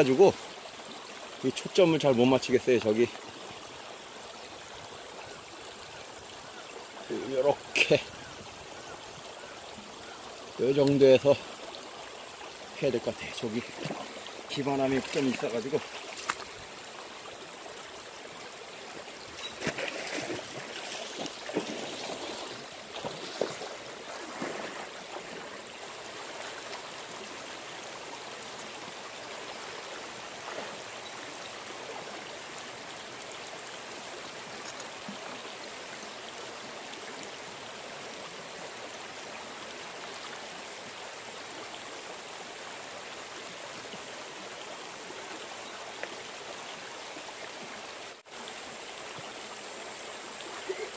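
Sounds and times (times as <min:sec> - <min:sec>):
river water flowing over rocks: 0:00.0 - 0:50.9
person wading through water: 0:13.4 - 0:16.8, 0:19.0 - 0:27.3.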